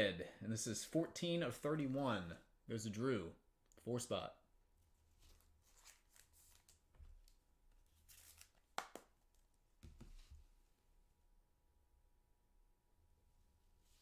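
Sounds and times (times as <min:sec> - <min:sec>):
trading card packaging rustling: 0:05.1 - 0:09.1.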